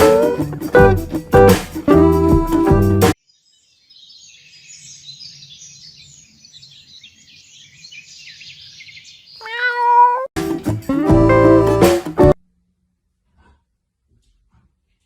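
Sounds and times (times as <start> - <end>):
cat meowing: 9.4 - 10.3.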